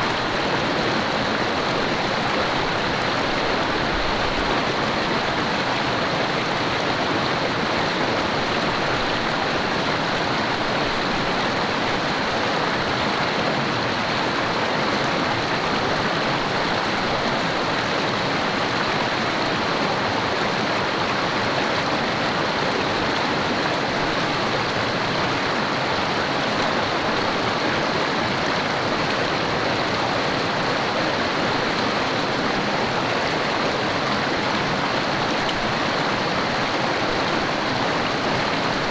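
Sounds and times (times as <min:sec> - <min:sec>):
river running over rocks: 0:00.0 - 0:38.9.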